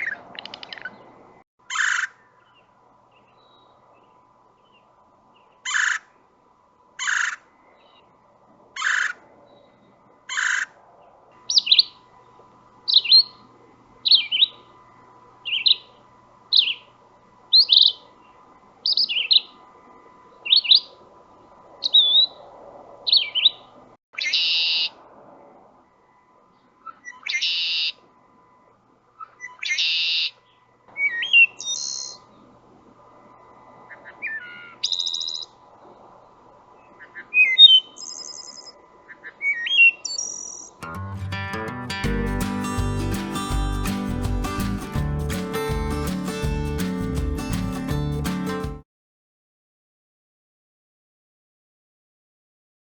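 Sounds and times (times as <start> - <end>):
harsh bird calls: 5.4 - 6.2, 7.0 - 8.1, 8.8 - 12.0, 33.8 - 35.6
whistled bird notes: 37.4 - 38.8.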